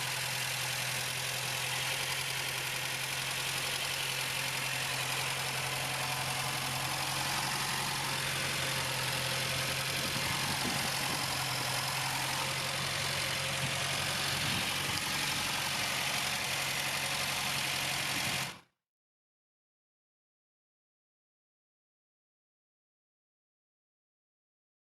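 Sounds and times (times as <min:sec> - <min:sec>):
car engine idling: 0:00.0 - 0:18.6.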